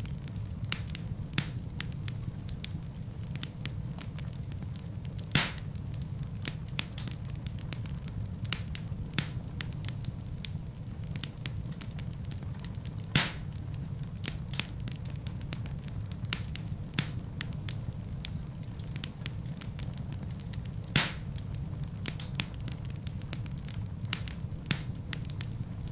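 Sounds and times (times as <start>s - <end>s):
fire popping loudly: 0.0s - 25.9s
fire rumbling and crackling: 0.0s - 25.9s.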